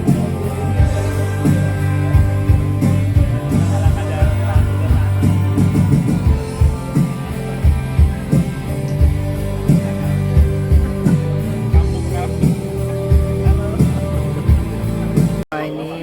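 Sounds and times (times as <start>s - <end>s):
live band playing: 0.0s - 15.4s
low bass notes: 0.0s - 15.4s
steady drum beat: 0.0s - 15.4s.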